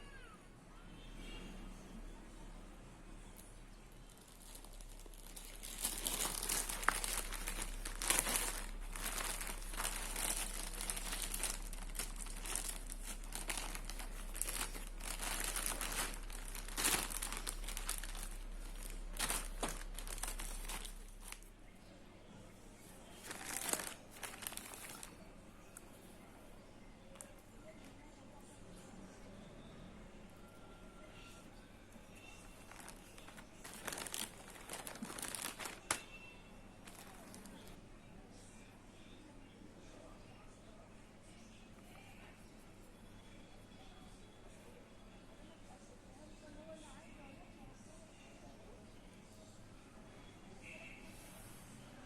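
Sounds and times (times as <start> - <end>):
wrapping crackling and rustling: 3.3 - 21.6, 22.8 - 25.9, 31.9 - 37.8.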